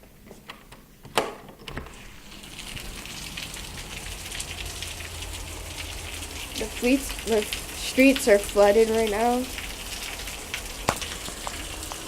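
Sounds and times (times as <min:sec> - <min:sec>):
heavy rain falling: 0:01.9 - 0:12.0.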